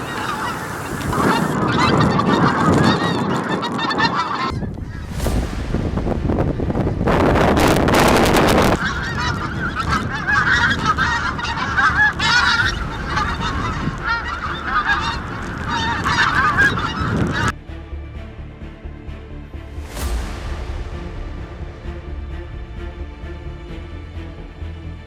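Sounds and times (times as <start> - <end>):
geese calling: 0.0 - 5.0, 7.7 - 17.6
wind noise on microphone: 0.0 - 17.6
quiet music: 4.0 - 25.0.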